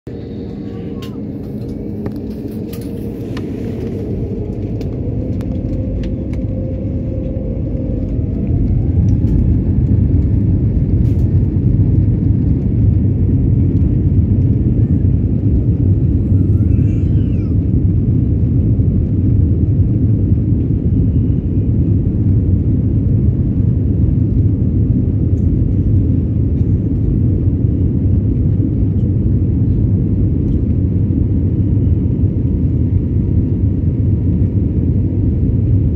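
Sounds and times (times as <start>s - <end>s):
jet engines spooling up: 0.1s - 18.4s
low engine rumble in cabin: 0.1s - 35.9s.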